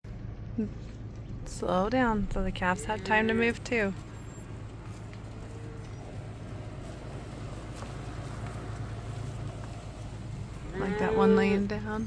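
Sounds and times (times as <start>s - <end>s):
truck engine running at low speed: 3.4s - 10.7s.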